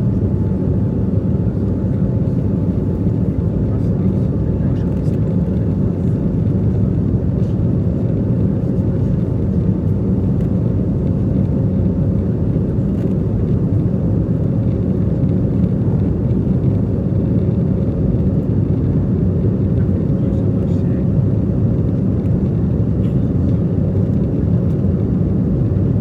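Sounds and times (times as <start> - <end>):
jet engines roaring on takeoff: 0.0 - 26.0.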